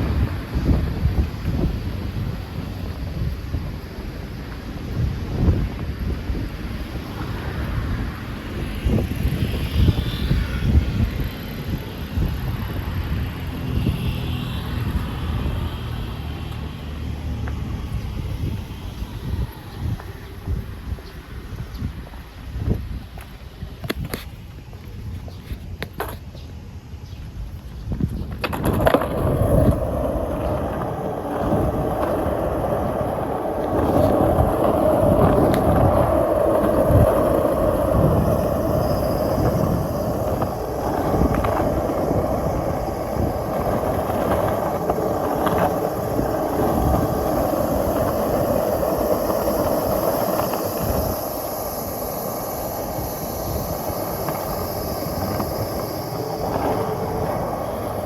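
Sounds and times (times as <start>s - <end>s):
skateboard wheels rolling on pavement: 0.0s - 58.0s
clicks from pavement cracks: 23.1s - 26.5s, 27.5s - 51.2s.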